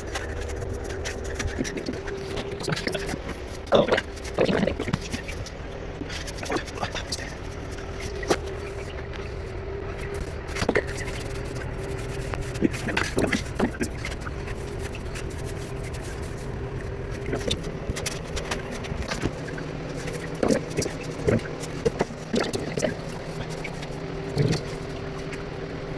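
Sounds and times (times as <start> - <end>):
scraping strokes: 0.0 - 25.9
small motor humming: 0.0 - 25.9.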